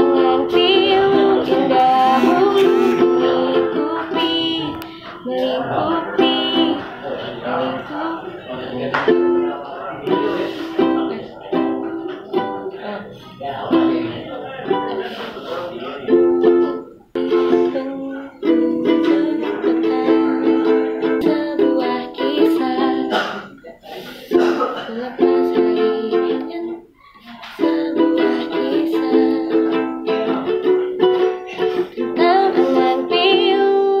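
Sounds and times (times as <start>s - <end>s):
chords strummed on small stringed instrument: 0.0s - 8.1s, 15.8s - 23.2s, 27.6s - 34.0s.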